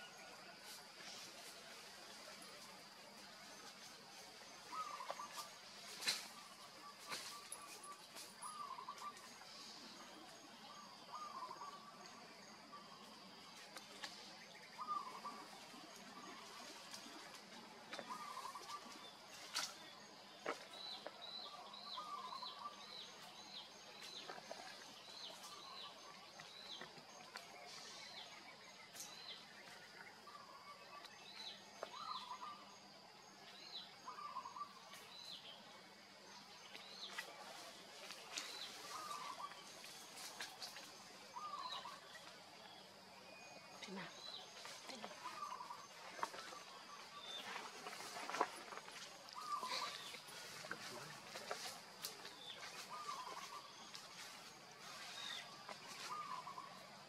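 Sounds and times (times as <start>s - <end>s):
bird warbling call: 18.1s - 18.9s.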